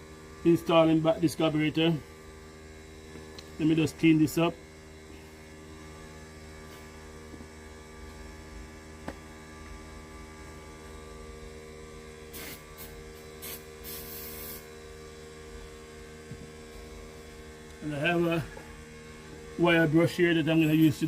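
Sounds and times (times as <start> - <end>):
steady low hum: 0.0 - 21.0
short hissing sprays: 12.3 - 14.7.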